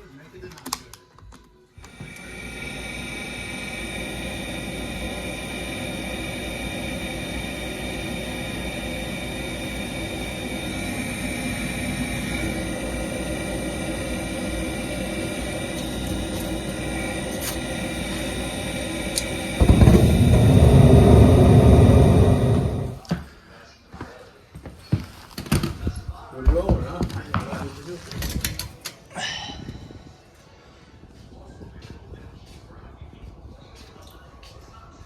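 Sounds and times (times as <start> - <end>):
faint high whines: 1.8 - 23.1
furnace running: 1.8 - 23.3.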